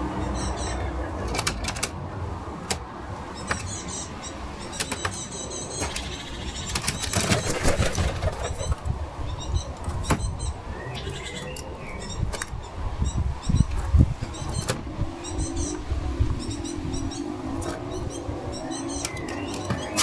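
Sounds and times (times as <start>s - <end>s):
small birds chirping: 0.0s - 20.0s
sharp clicks: 1.3s - 2.0s, 4.7s - 7.7s
wing flaps: 6.7s - 8.9s.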